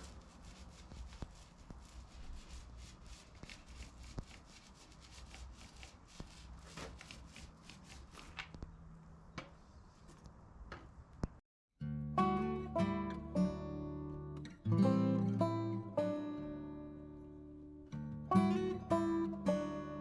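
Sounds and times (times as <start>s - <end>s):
scratchy sanding strokes on metal: 0.0s - 8.4s.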